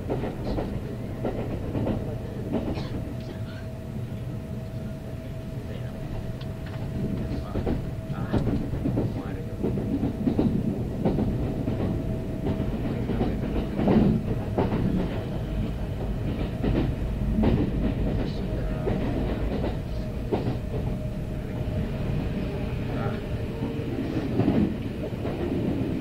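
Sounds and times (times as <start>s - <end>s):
low train rumble: 0.0s - 26.0s
train wheels knocking over rail joints: 7.0s - 15.3s.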